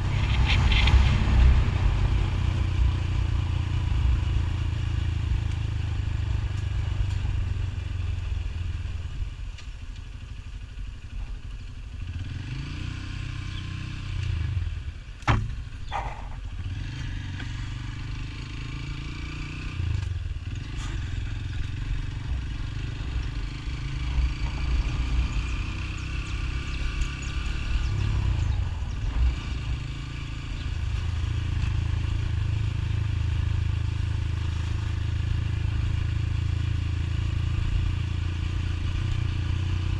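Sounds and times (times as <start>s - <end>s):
motorcycle engine rumble: 0.0s - 39.9s.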